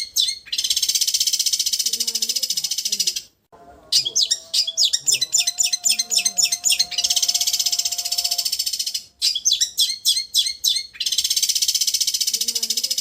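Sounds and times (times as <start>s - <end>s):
shrike trilling song: 3.6s - 11.2s.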